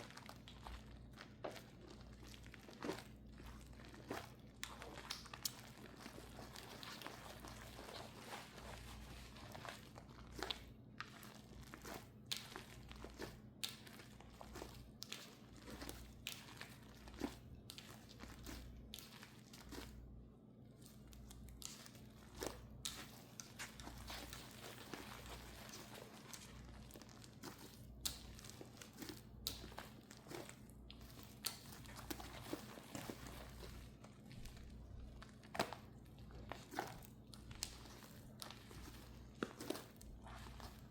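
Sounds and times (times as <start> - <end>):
low steady hum: 0.0 - 40.9
soft crinkly crackles and clicks: 20.6 - 40.9.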